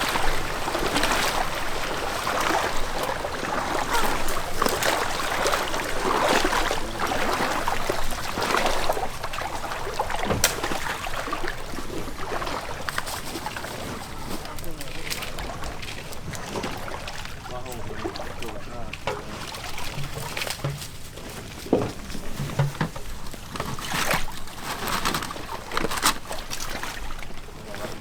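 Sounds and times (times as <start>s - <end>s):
water splashing around a boat: 0.0s - 28.0s.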